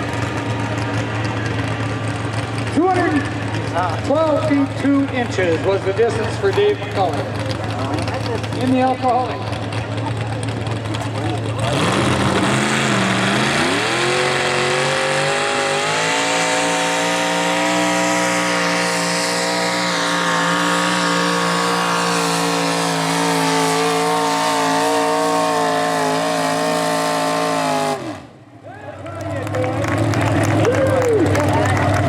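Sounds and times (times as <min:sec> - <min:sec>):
tractor engine screaming: 0:00.0 - 0:32.0.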